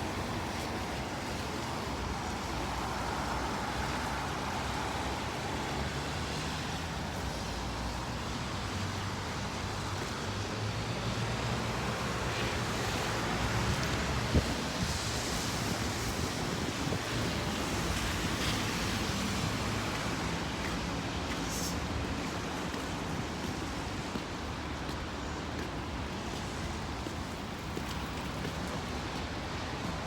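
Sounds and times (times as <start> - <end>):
rain: 0.0 - 30.0
road traffic: 0.0 - 30.0
wind buffeting microphone: 13.3 - 20.0.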